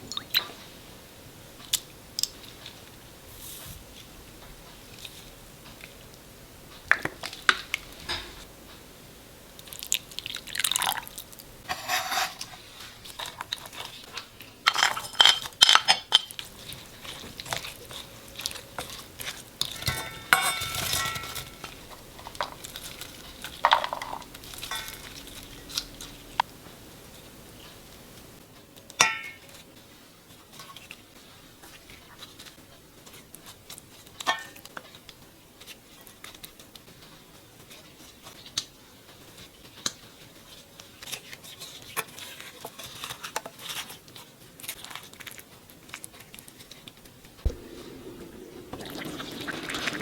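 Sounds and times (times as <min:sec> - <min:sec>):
spoons clinking against bowls: 0:14.7 - 0:26.3, 0:29.0 - 0:29.5.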